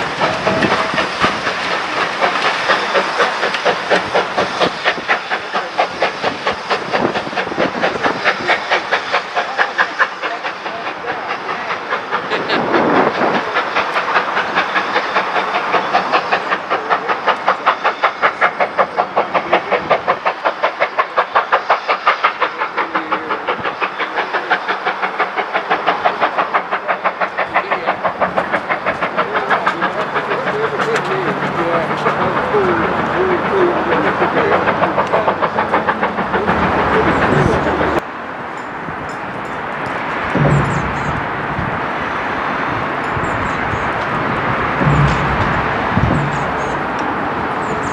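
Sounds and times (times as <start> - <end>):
steam hissing: 0.0 - 47.9
steam locomotive chuffing: 0.0 - 47.9.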